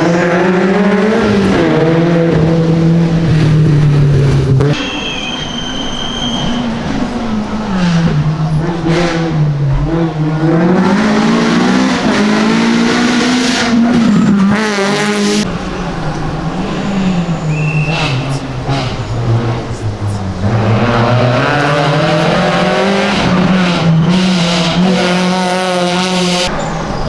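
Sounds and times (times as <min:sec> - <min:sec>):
rally car engine revving: 0:00.0 - 0:27.0
high steady whistle: 0:04.8 - 0:07.1, 0:16.6 - 0:19.2.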